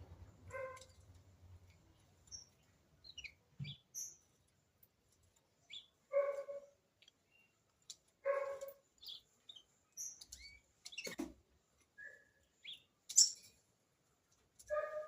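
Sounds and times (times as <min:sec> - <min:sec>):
bird chirping: 0:01.9 - 0:04.5, 0:05.6 - 0:07.6, 0:08.2 - 0:11.3, 0:11.9 - 0:13.6.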